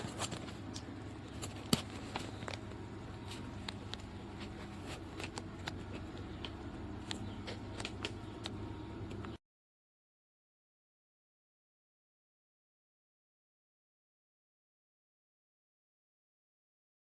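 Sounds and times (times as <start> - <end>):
faint low hum: 0.0 - 9.4.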